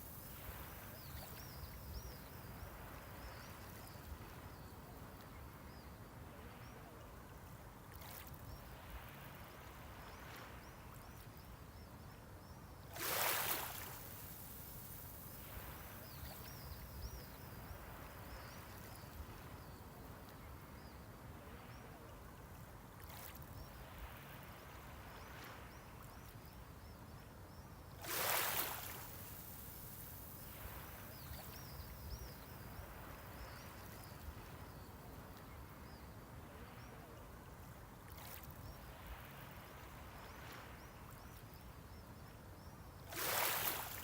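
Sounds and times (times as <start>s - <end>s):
small waves breaking on shore: 0.0s - 5.3s, 12.8s - 20.6s, 27.9s - 41.6s, 43.0s - 44.0s
low wash of sea: 0.0s - 44.0s.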